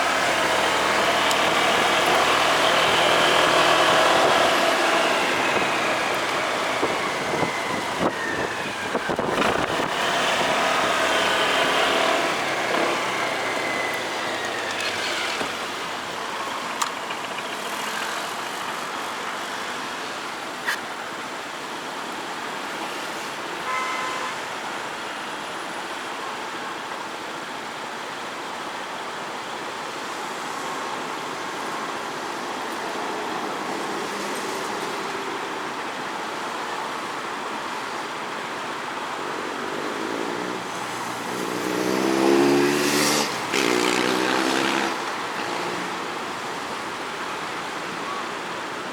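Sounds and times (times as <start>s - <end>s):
motorcycle engine: 0.0s - 19.5s, 40.2s - 46.6s
wind and road noise: 0.0s - 48.9s.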